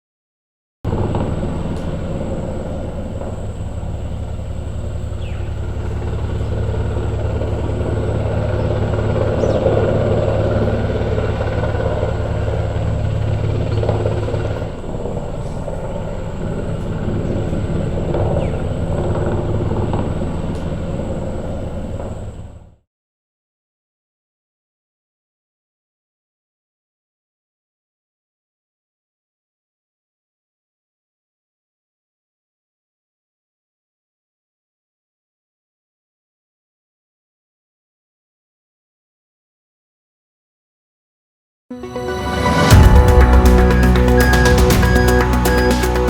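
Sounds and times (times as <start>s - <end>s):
helicopter rotor beating: 0.9s - 22.6s, 42.2s - 46.0s.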